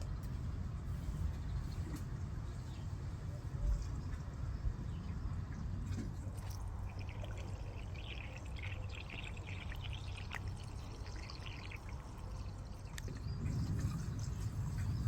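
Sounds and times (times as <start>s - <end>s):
water splashing onto plants and soil: 6.1s - 15.0s.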